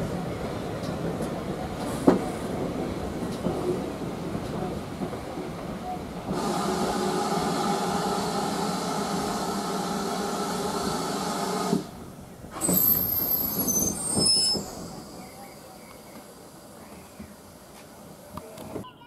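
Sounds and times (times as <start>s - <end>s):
passenger train running: 0.0s - 19.0s
short high squeals: 12.6s - 15.0s.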